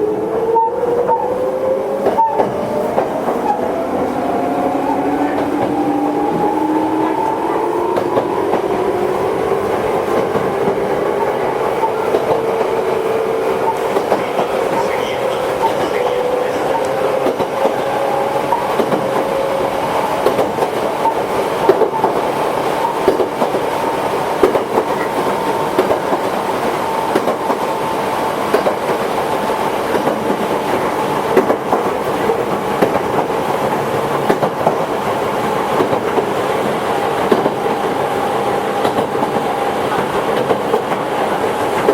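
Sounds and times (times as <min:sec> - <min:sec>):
wheels clicking over rail joints: 0:09.5 - 0:27.7.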